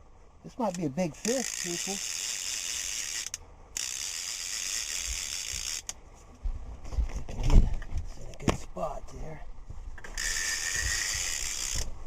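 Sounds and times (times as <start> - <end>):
fishing reel clicker ratcheting: 0.7 - 6.0, 10.0 - 11.9.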